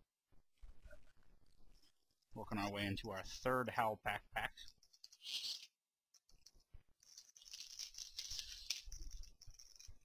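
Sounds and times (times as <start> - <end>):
small clicks: 4.6 - 10.0
foil wrapper crinkling: 7.0 - 10.0.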